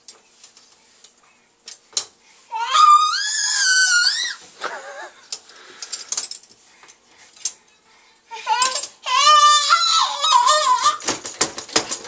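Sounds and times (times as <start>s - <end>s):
toddler crying angrily: 2.5s - 5.2s, 8.3s - 11.0s.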